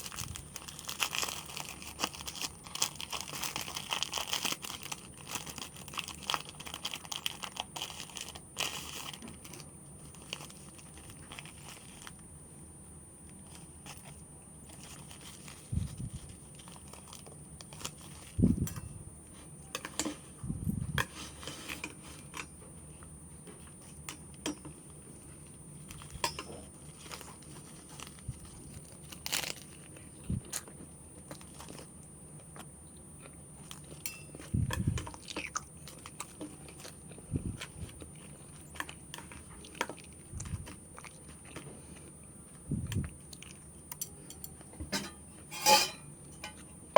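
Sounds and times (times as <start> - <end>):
plastic packaging crinkling: 0.0 - 12.2, 13.3 - 18.6, 25.8 - 31.9.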